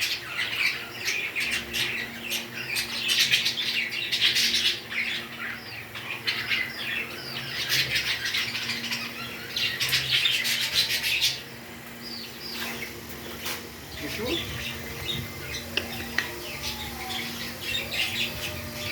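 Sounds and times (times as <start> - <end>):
parrots chirping and squawking: 0.0 - 18.9.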